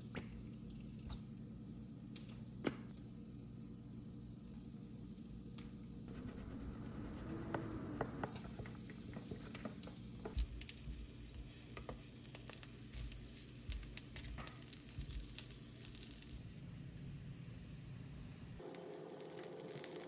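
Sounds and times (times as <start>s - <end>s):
food frying with crackles and pops: 4.5s - 6.0s, 8.1s - 20.0s.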